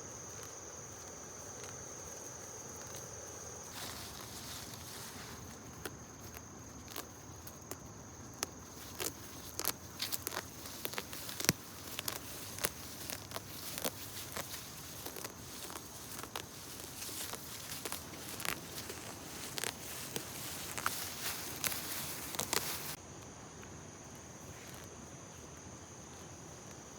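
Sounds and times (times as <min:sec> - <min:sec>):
sharp snaps and crackles: 0:05.4 - 0:23.0.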